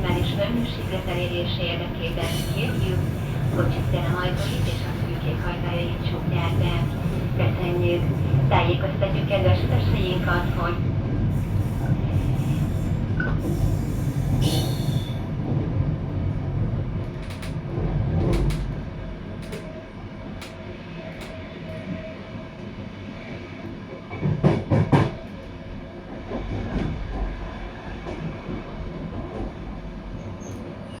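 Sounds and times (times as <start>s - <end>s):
train wheels rumbling on track: 0.0s - 31.0s
rail clicks: 16.9s - 22.0s.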